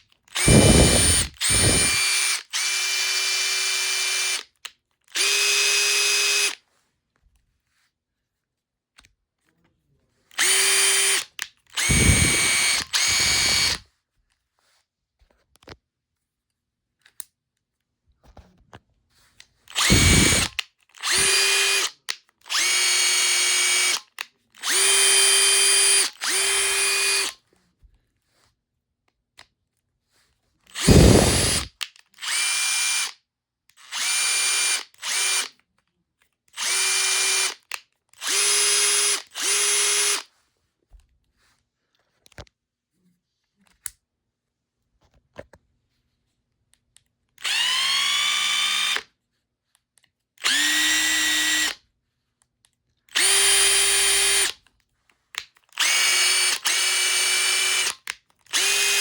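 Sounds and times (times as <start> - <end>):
impact driver motor whine: 0.4 - 4.4, 5.2 - 6.6, 10.4 - 11.2, 11.8 - 13.8, 19.8 - 21.9, 22.5 - 24.0, 24.6 - 27.3, 30.8 - 33.0, 33.9 - 35.5, 36.6 - 37.6, 38.2 - 40.2, 50.4 - 51.7, 53.2 - 54.5, 55.8 - 57.9, 58.5 - 59.0.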